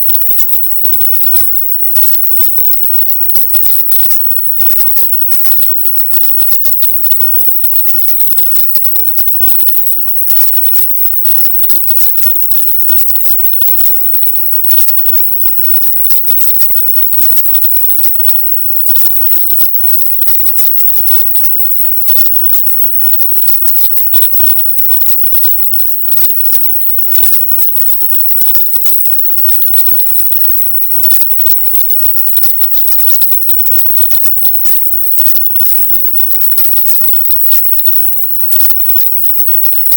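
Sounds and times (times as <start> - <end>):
high-pitched crackly hiss: 0.0 - 39.9.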